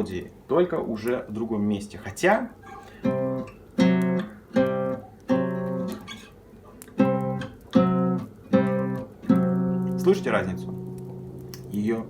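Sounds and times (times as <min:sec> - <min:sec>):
classical guitar plucked chords: 0:02.6 - 0:12.0.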